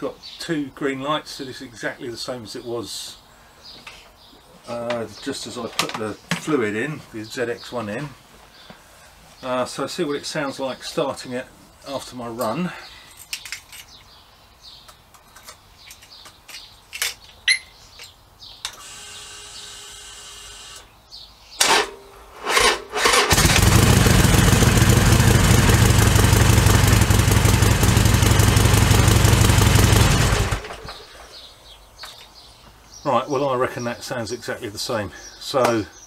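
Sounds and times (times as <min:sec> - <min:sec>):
starter whine: 0:21.6 - 0:31.0
motorcycle engine running: 0:23.3 - 0:30.9.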